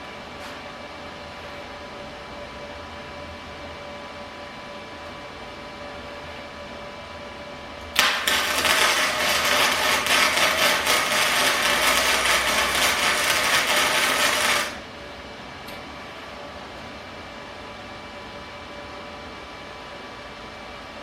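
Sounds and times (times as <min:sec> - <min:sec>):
welding arc crackling: 0:07.9 - 0:14.9.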